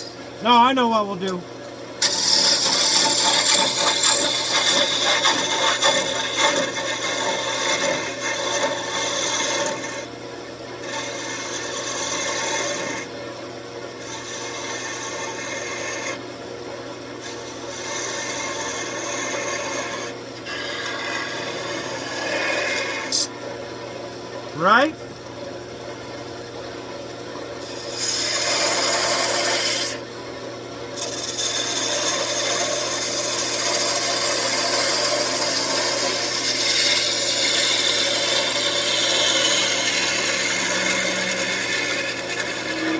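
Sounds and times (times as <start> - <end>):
lathe motor hum: 2.0 - 10.1, 10.8 - 13.2, 14.0 - 16.2, 17.2 - 23.5, 31.0 - 42.9
turning tool scraping spinning wood: 2.0 - 10.1, 10.8 - 13.1, 14.0 - 16.2, 17.2 - 23.3, 27.6 - 30.1, 31.0 - 42.9.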